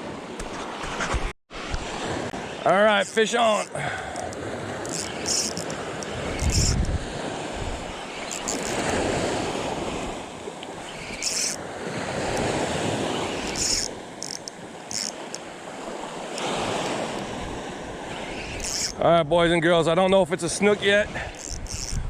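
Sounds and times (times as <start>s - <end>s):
wind buffeting microphone: 4.2s - 14.9s.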